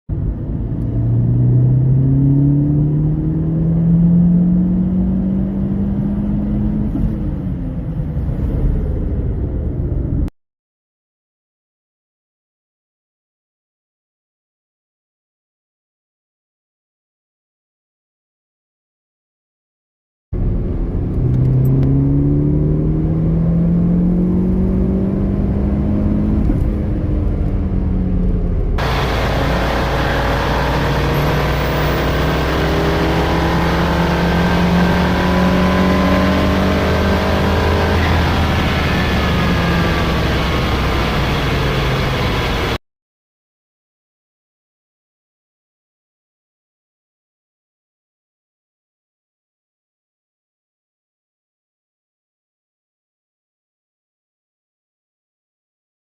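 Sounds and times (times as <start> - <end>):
car engine accelerating hard: 0.1 - 10.2, 20.4 - 42.8.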